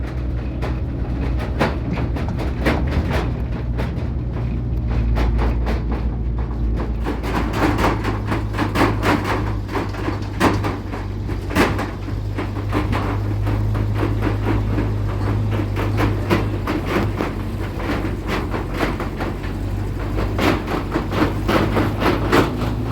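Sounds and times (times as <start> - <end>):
rattling and clattering: 0.0 - 22.9
vehicle engine humming: 0.0 - 22.9.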